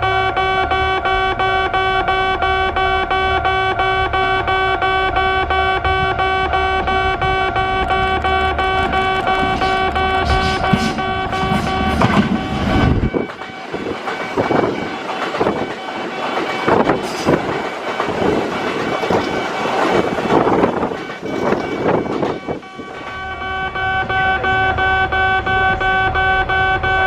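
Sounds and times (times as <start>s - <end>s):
train wheels clattering: 7.9s - 24.4s.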